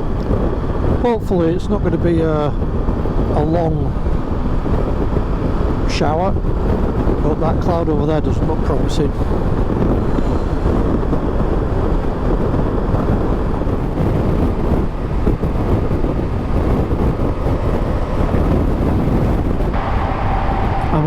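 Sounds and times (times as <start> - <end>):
wind rush: 0.0 - 21.0
motorcycle engine while riding: 9.2 - 21.0.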